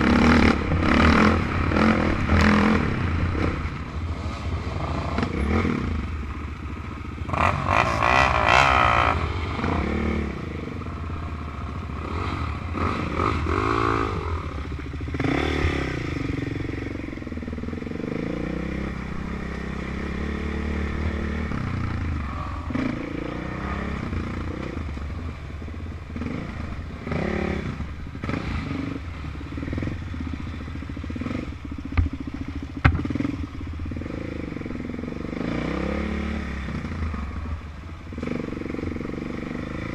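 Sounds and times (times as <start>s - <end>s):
quad and dirt bike engines revving: 0.0s - 39.9s
sharp knocks: 32.8s - 33.1s.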